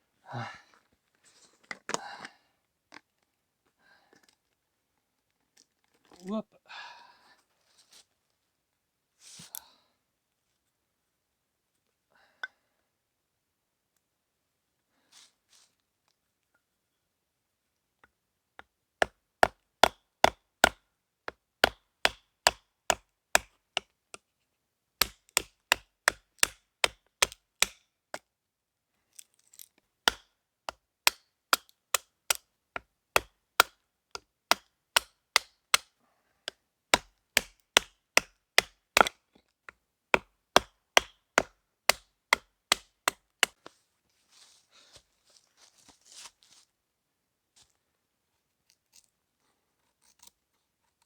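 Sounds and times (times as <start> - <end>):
chopping wood: 19.0 - 23.9, 25.0 - 27.8, 30.1 - 33.8, 34.5 - 35.9, 36.9 - 39.2, 40.2 - 43.6.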